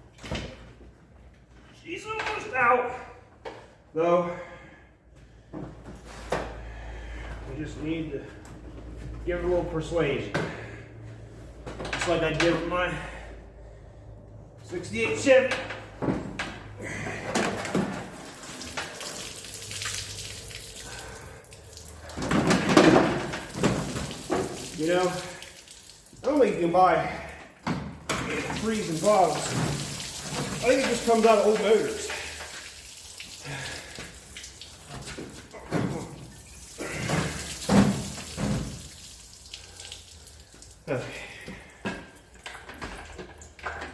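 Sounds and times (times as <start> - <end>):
liquid pouring and splashing: 17.5 - 27.4, 28.1 - 43.9.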